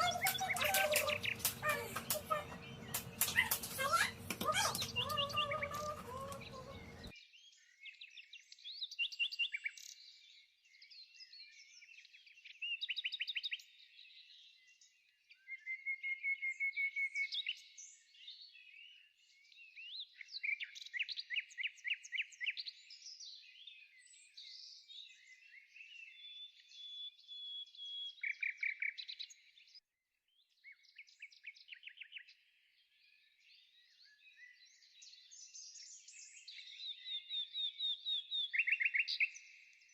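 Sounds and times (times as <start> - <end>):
songbirds trilling and chirping: 0.0 - 11.6.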